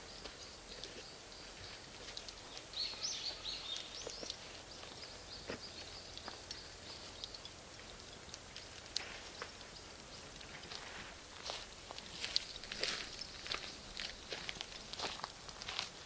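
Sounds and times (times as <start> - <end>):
bird chirping: 0.0 - 8.7
campfire crackling: 0.0 - 16.0
fire popping: 0.0 - 16.0.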